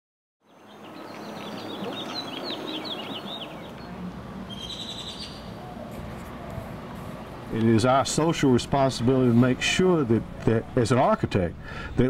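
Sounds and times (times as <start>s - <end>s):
songbird chirping: 0.4s - 6.6s
outdoor background hiss: 0.4s - 12.0s.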